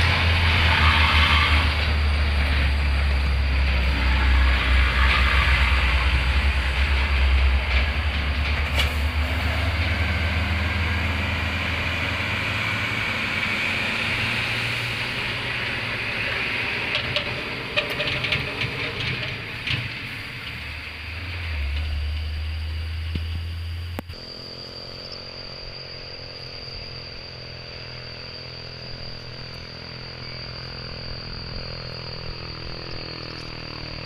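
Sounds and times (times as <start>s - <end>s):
truck diesel engine rumbling: 0.0s - 34.0s
hiss: 0.1s - 7.9s.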